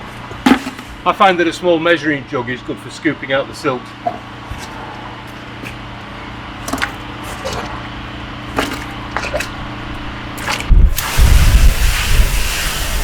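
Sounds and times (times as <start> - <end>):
jug scraping wet silt: 8.4 - 9.7, 10.3 - 13.0.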